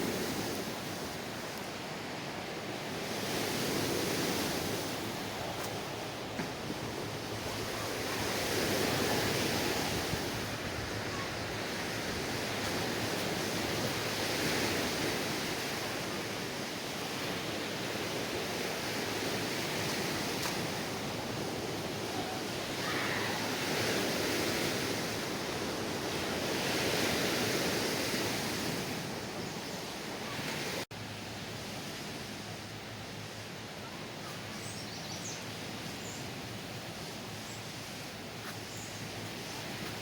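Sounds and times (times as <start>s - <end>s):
lake waves washing onto rocks: 0.0s - 29.2s
steady outdoor hiss: 0.0s - 40.0s
strong wind: 0.0s - 40.0s.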